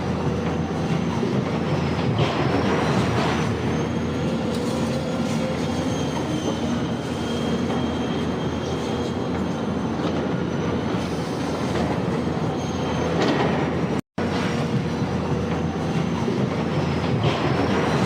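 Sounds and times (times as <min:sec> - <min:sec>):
faint high squealing tones: 0:03.0 - 0:13.3.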